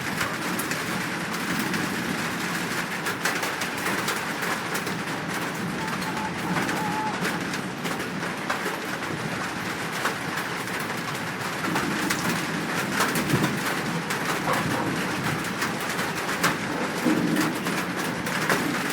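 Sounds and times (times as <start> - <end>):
scattered ticks: 4.8 - 7.4
bird cooing calls: 5.5 - 7.4.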